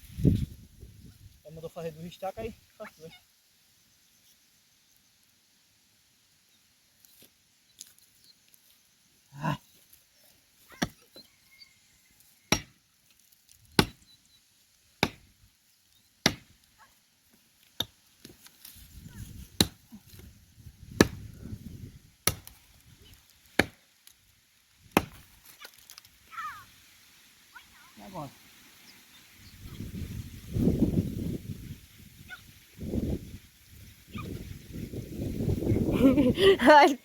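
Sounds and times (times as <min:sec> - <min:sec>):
axe chopping tree trunk: 0:10.7 - 0:11.0, 0:12.5 - 0:12.8, 0:13.7 - 0:14.0, 0:15.0 - 0:15.4, 0:16.2 - 0:16.6, 0:17.7 - 0:18.4, 0:19.4 - 0:20.3, 0:20.9 - 0:21.3, 0:22.2 - 0:22.6, 0:23.5 - 0:23.8, 0:24.9 - 0:25.4.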